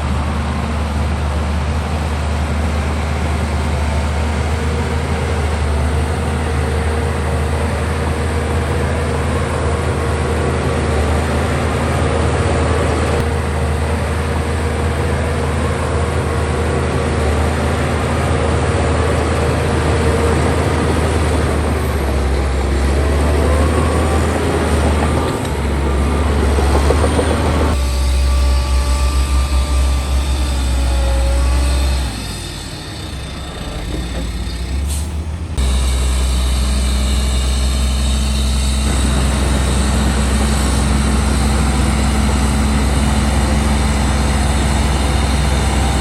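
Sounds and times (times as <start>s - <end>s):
heavy diesel engine droning: 0.0s - 46.0s.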